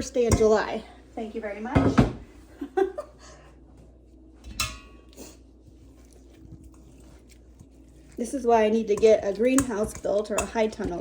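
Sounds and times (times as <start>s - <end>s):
utensils clinking against dishes: 4.5s - 5.2s, 8.7s - 11.0s.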